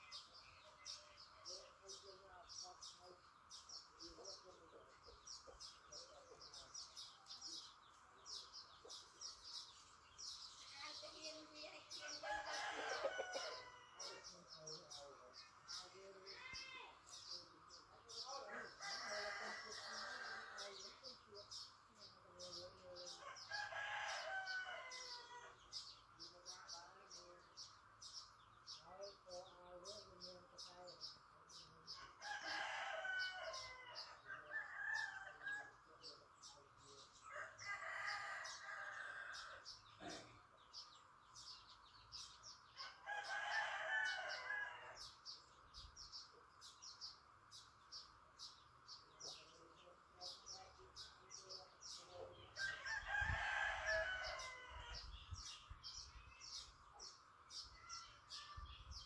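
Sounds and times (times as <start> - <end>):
roosters crowing: 11.9 - 14.6, 18.4 - 21.0, 23.0 - 25.8, 31.5 - 35.9, 37.2 - 40.2, 42.7 - 45.3, 51.8 - 59.0.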